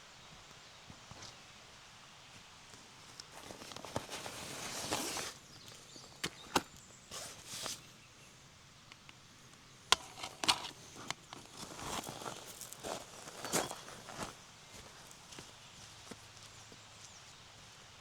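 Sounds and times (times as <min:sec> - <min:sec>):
rustling: 0:03.1 - 0:08.0, 0:09.9 - 0:16.5.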